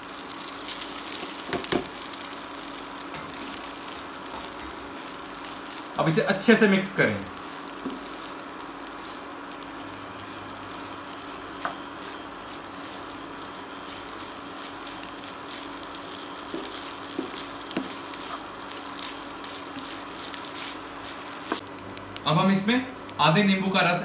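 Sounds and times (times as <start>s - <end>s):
food sizzling in a pan: 0.0s - 24.0s
steady hum: 0.0s - 24.0s
spatula scraping and tapping pan: 16.0s - 19.2s.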